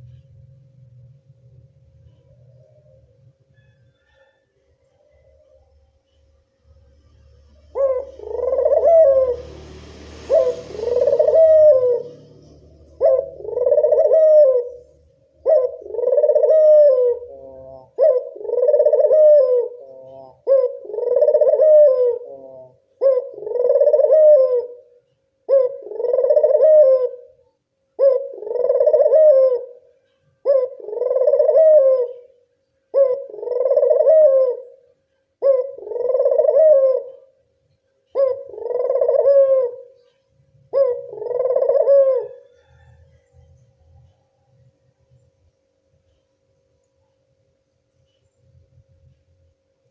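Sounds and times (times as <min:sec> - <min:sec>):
dove cooing: 0:02.1 - 0:04.4, 0:07.2 - 0:37.4, 0:38.1 - 0:45.0.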